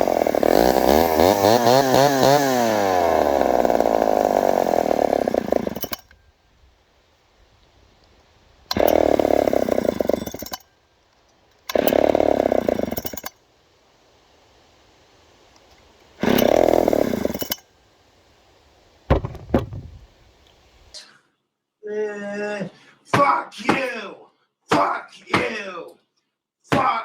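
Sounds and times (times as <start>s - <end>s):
chainsaw starting and sputtering: 0.0s - 6.2s, 8.7s - 10.7s, 11.6s - 13.4s, 16.1s - 17.7s, 19.1s - 20.1s
sharp knocks: 19.1s - 20.1s.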